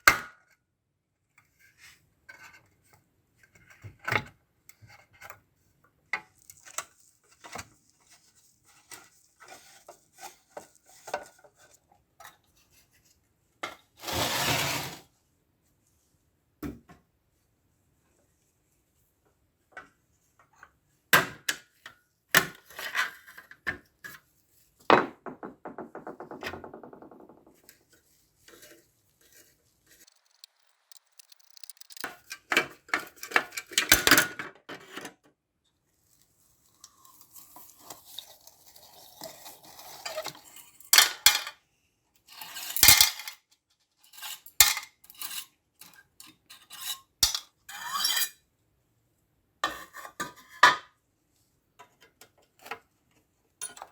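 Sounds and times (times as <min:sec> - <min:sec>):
metal scraping: 0:29.9 - 0:32.1
metal parts and tools clinking: 0:30.0 - 0:32.1.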